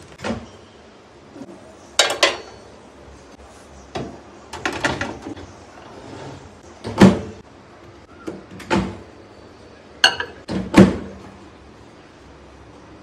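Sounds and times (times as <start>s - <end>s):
hard clattering knocks and clinks: 10.0s - 10.4s.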